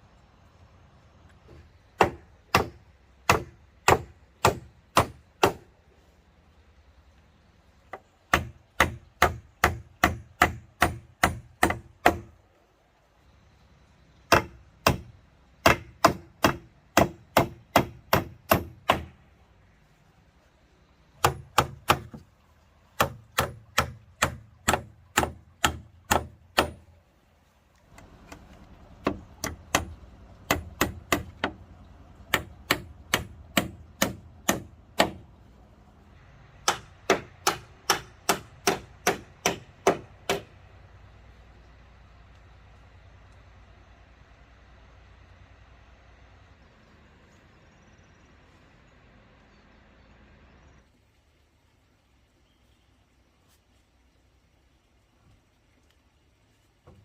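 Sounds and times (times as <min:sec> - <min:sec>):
hand tool striking wood: 0:02.0 - 0:05.6, 0:07.9 - 0:12.3, 0:14.3 - 0:19.1, 0:21.2 - 0:22.2, 0:23.0 - 0:26.8, 0:29.0 - 0:31.6, 0:32.3 - 0:35.2, 0:36.6 - 0:40.5.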